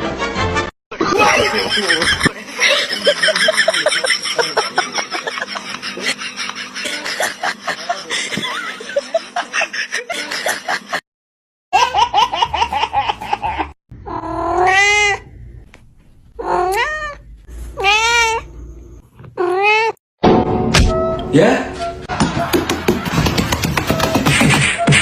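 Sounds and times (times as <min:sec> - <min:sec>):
cat meowing: 0:14.1 - 0:15.3, 0:16.4 - 0:17.2, 0:17.8 - 0:18.5, 0:19.4 - 0:20.0.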